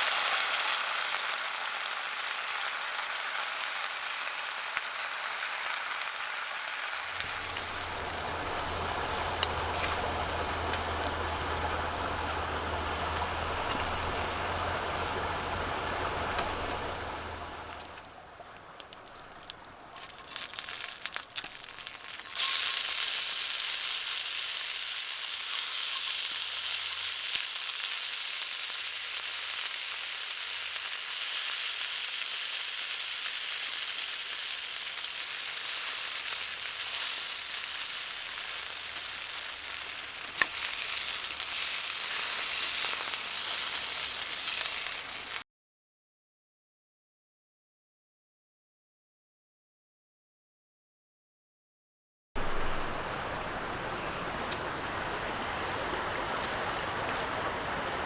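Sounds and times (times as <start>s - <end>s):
food sizzling in a pan: 0.0s - 18.0s, 19.9s - 45.4s.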